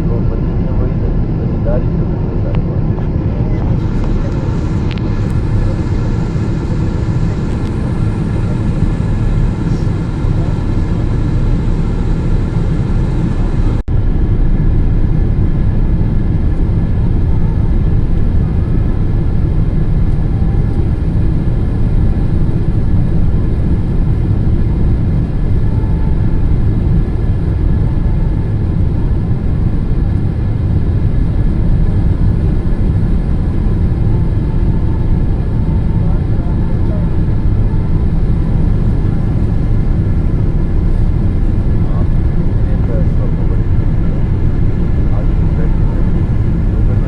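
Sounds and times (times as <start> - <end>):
airplane cabin rumble: 0.0 - 47.0.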